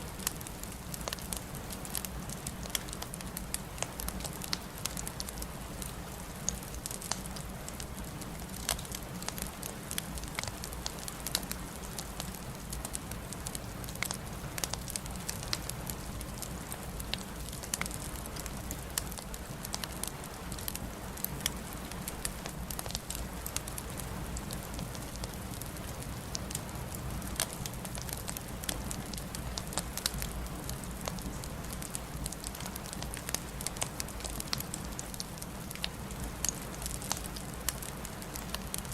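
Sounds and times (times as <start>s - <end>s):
fire flames rumbling and hissing: 24.7s - 38.9s
burning logs popping and snapping: 27.4s - 38.9s.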